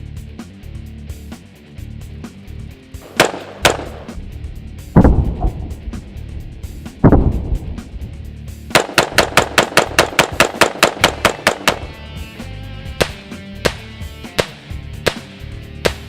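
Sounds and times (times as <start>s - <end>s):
background music: 0.0s - 16.0s
rifle shots: 3.0s - 4.2s, 5.0s - 5.9s, 7.0s - 7.9s, 8.7s - 12.0s, 13.0s - 16.0s.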